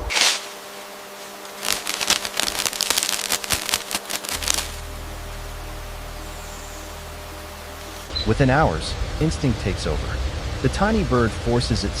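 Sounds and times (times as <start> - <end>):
dry crackling and rustling: 0.0 - 4.9
steady low hum: 0.0 - 12.0.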